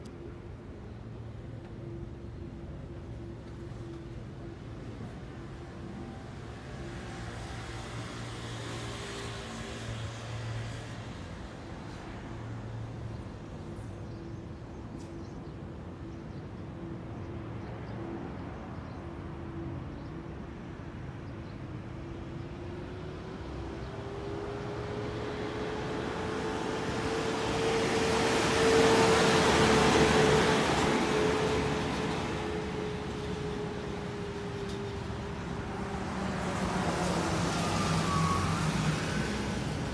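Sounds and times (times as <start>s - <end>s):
vehicle engine approaching: 23.3s - 39.9s.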